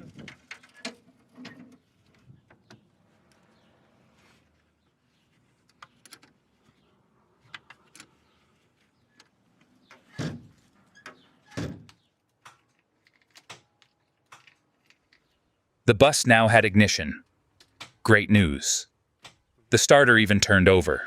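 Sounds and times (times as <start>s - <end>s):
tools and metal parts clicking: 12.4s - 15.4s.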